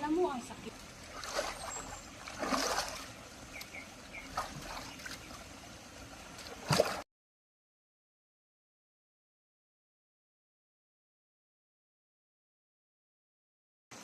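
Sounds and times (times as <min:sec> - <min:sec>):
stream flowing and trickling: 0:00.0 - 0:07.0
water splash: 0:00.7 - 0:05.5, 0:06.2 - 0:07.0.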